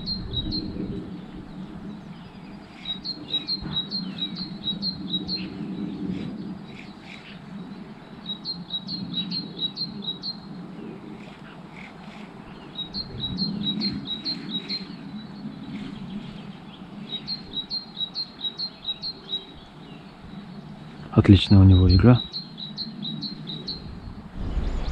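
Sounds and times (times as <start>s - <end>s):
songbird chirping: 0.0s - 24.9s
low rushing background: 23.0s - 24.9s.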